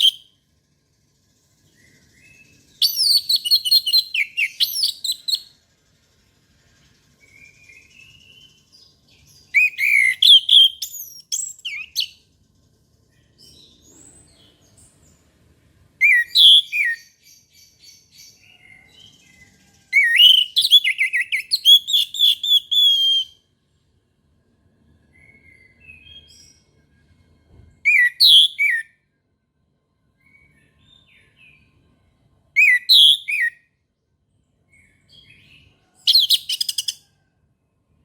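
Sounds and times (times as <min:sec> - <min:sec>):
thrush singing whistled notes: 0:00.0 - 0:00.5, 0:01.2 - 0:05.6, 0:06.7 - 0:12.2, 0:16.0 - 0:23.4, 0:27.9 - 0:28.9, 0:32.6 - 0:33.6.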